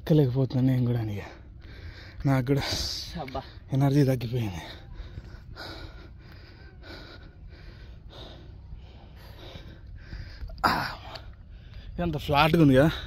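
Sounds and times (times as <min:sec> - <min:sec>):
person panting heavily: 0:01.3 - 0:03.7, 0:04.4 - 0:12.0.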